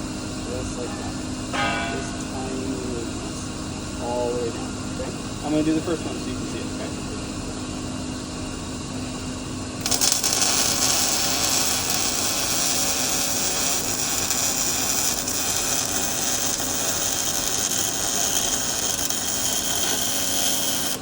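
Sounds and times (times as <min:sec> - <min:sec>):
welding arc crackling sizzle: 0:09.8 - 0:21.0.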